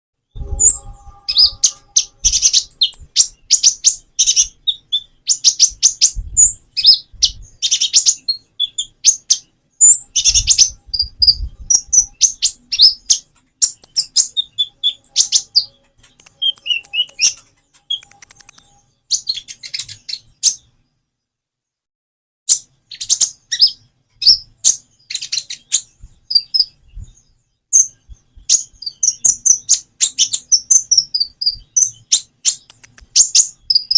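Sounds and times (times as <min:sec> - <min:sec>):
songbird chirping high notes: 0:00.2 - 0:21.0, 0:22.5 - 0:33.9.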